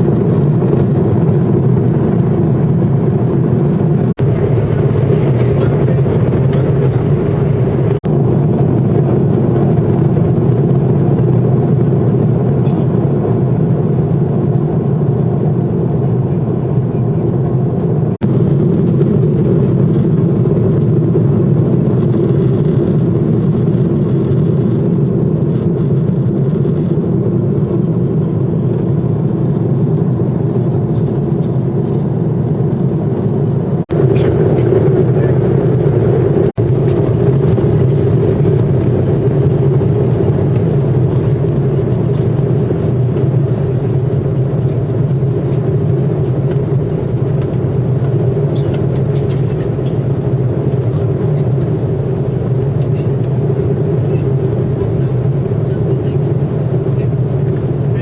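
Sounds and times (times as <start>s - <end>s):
jet engine drone in cabin: 0.0s - 58.0s.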